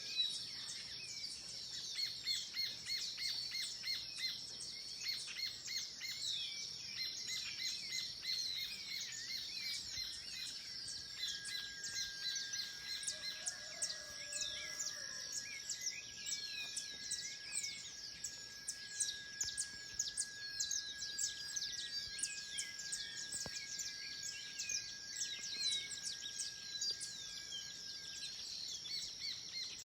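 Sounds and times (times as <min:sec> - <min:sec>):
birds chirping and calling: 0:00.0 - 0:29.8
lower steady tone: 0:07.7 - 0:29.8
steady high-pitched tone: 0:08.4 - 0:29.8.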